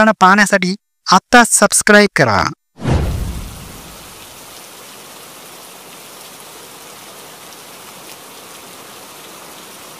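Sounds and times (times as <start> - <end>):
low rumble: 2.8 - 4.4
falling water hiss: 3.0 - 9.9.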